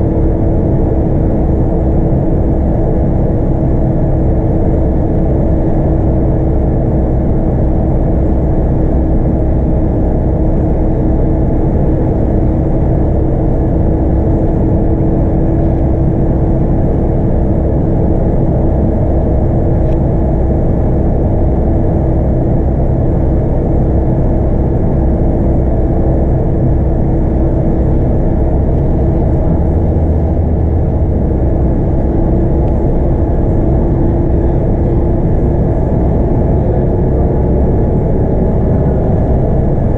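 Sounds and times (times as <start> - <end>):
bus engine hum and rumble: 0.0 - 39.9
road noise: 24.8 - 39.9.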